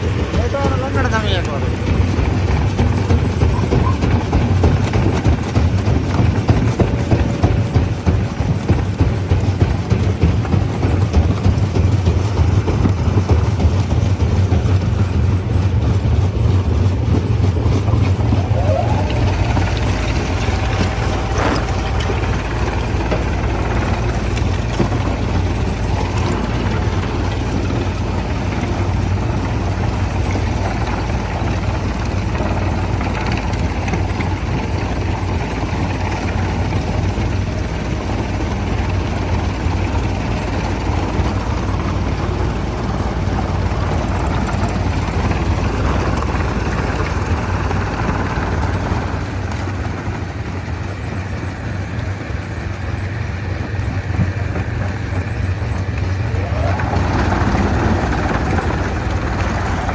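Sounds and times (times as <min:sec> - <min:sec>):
stone crusher machinery running: 0:00.0 - 0:59.9.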